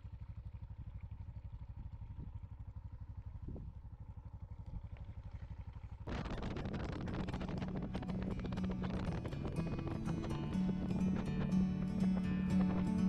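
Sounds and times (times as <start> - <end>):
music: 7.0 - 13.0.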